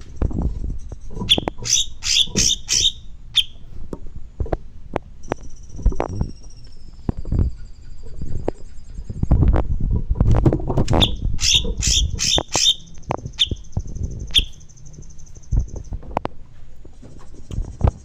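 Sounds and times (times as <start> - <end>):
songbird squawky notes: 1.1 - 3.7, 10.9 - 16.0.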